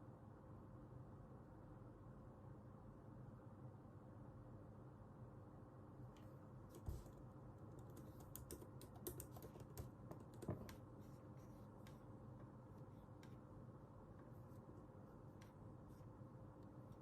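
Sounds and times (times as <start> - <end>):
typing on a keyboard: 6.7 - 10.9.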